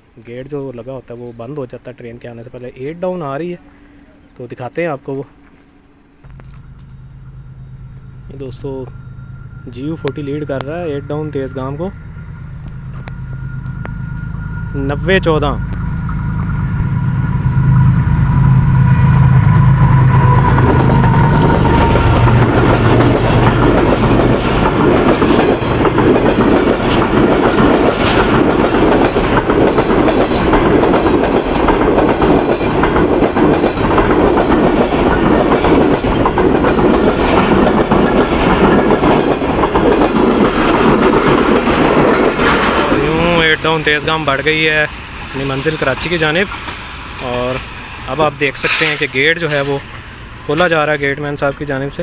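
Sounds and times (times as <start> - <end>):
diesel locomotive engine: 0.0 - 52.0
passenger coaches rumbling past: 0.0 - 52.0
wheels clacking over rail joints: 20.4 - 51.7.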